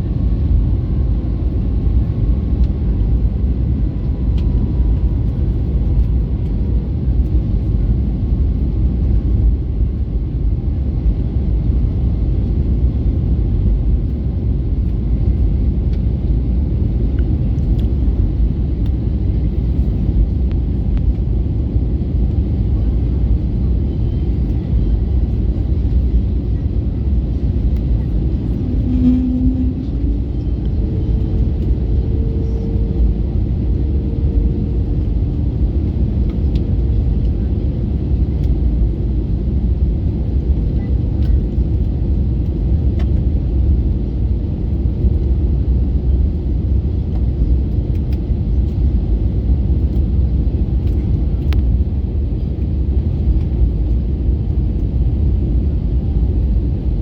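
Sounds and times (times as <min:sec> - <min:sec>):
airplane engines rumbling: 0:00.0 - 0:57.0
faint hum: 0:22.0 - 0:36.9.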